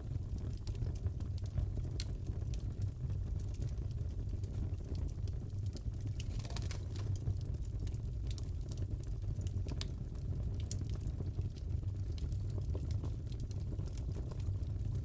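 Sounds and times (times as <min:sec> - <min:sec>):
fireplace fire rumbling: 0:00.0 - 0:15.0
wood popping and snapping: 0:06.2 - 0:07.3.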